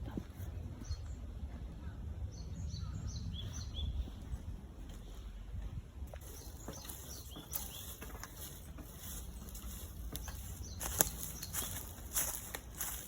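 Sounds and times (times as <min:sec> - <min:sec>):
bird chirps: 0:06.2 - 0:12.4
crunching and rustling clicks: 0:06.2 - 0:13.0.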